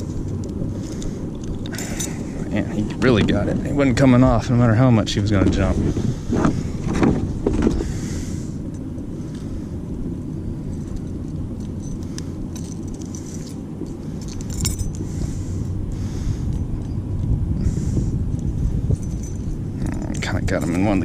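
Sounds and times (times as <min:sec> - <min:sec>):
light metallic clinks: 0:00.0 - 0:02.3, 0:10.6 - 0:15.0, 0:18.9 - 0:21.0
wind rumble on microphone: 0:00.0 - 0:21.0.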